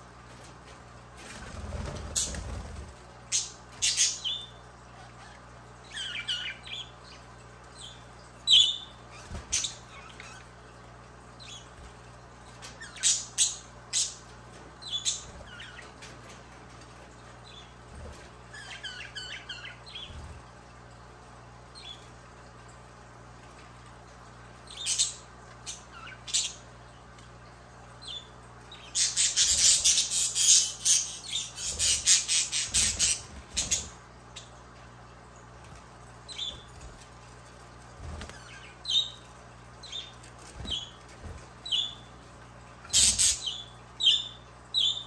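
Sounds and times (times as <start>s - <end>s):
budgerigar chirping and squawking: 29.0s - 33.9s, 42.9s - 45.0s.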